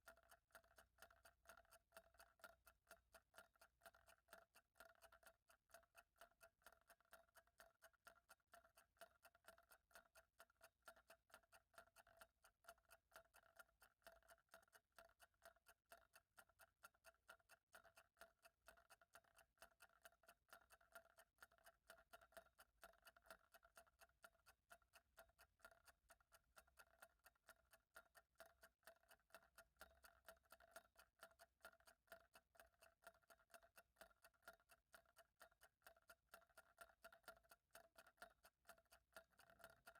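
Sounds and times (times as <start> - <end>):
faint clock ticking: 0.0 - 39.9.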